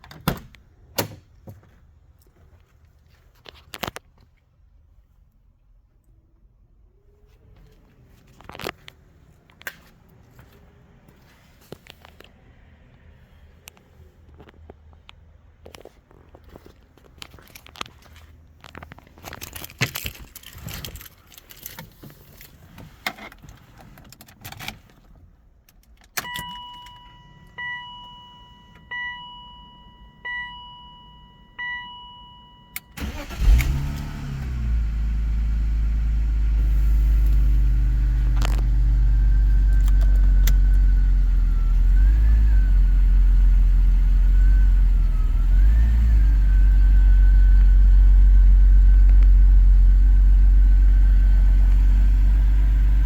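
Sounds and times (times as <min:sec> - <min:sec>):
keys jangling: 0:19.2 - 0:21.9
dashboard warning chime: 0:26.2 - 0:33.4
car engine cranking and starting: 0:32.8 - 0:53.0
car engine idling: 0:33.0 - 0:42.4.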